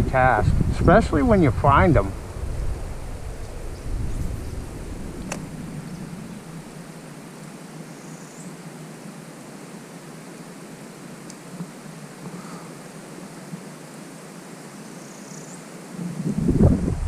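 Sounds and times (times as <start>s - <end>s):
wind buffeting microphone: 0.0s - 7.1s, 16.0s - 17.0s
steady wind hiss: 0.0s - 17.0s
sharp click: 5.2s - 5.5s.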